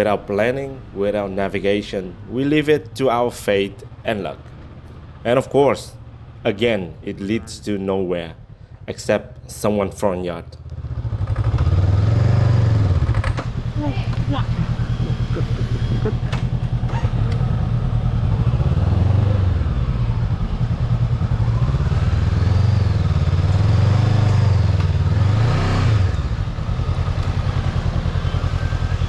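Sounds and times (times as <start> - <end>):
motorcycle engine revving and idling: 6.0 - 8.8, 10.6 - 29.0.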